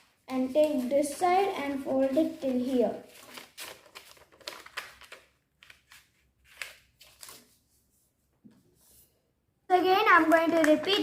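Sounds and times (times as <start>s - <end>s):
paper rustling and crinkling: 0.0s - 8.0s.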